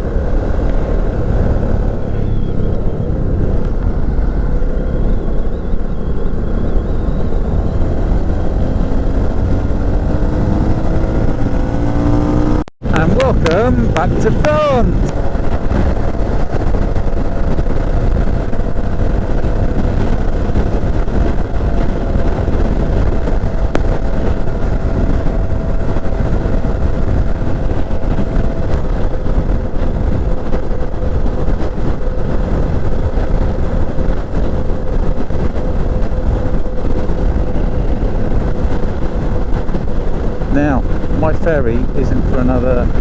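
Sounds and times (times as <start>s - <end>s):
motorcycle engine cruising: 0.0s - 43.0s
wind and road noise: 0.0s - 43.0s.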